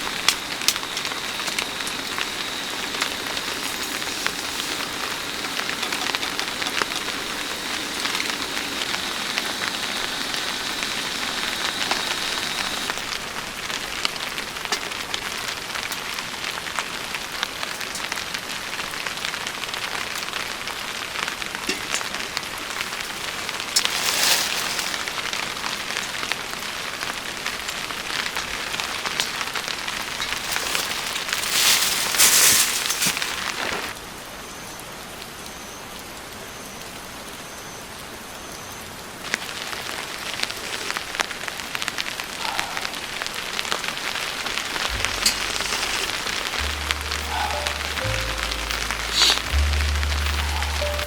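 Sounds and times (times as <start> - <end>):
thin high steady tone: 0.0 - 12.9, 44.8 - 51.0
raindrops ticking on a surface: 0.0 - 51.0
steady rain falling: 0.0 - 51.0.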